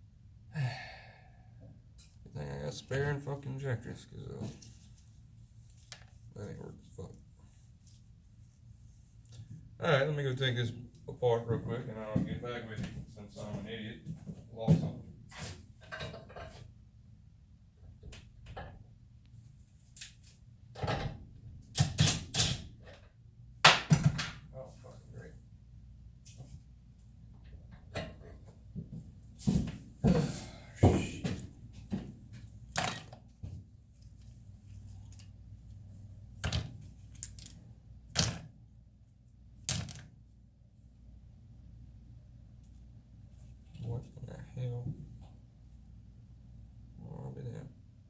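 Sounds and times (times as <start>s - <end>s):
small metal parts clinking: 32.7s - 33.2s, 37.1s - 37.6s.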